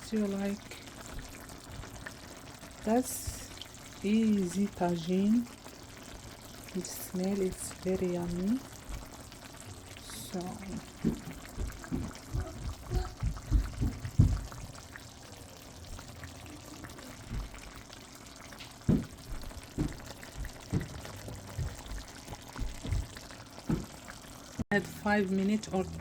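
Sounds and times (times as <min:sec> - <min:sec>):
sauce bubbling: 0:00.0 - 0:26.0
dull low thumps: 0:10.9 - 0:14.8, 0:18.9 - 0:23.9.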